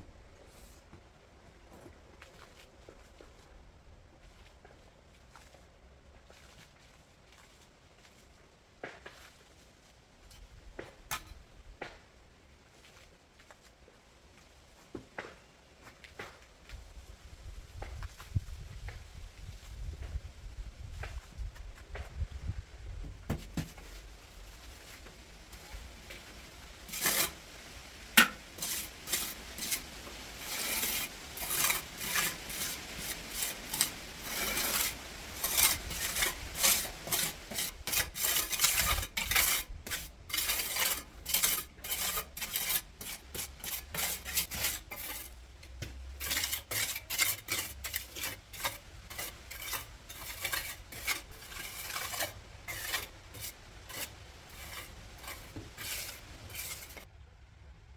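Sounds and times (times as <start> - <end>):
hand tool scraping rough surface: 10.3 - 11.4, 23.3 - 57.1.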